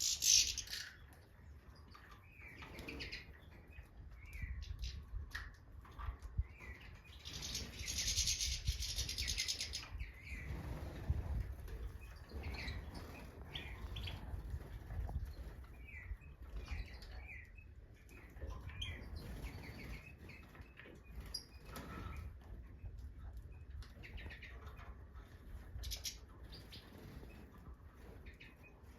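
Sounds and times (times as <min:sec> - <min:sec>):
goldfinch singing and chirping: 0:00.0 - 0:01.1, 0:06.4 - 0:11.1, 0:12.0 - 0:14.3, 0:15.1 - 0:21.8, 0:25.7 - 0:27.4.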